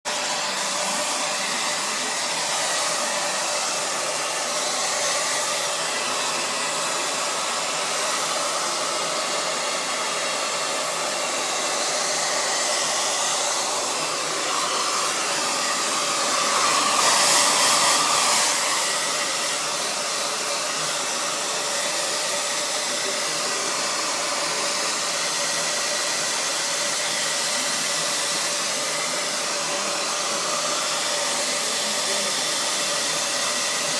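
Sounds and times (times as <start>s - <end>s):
hair dryer blowing: 0.0s - 33.9s.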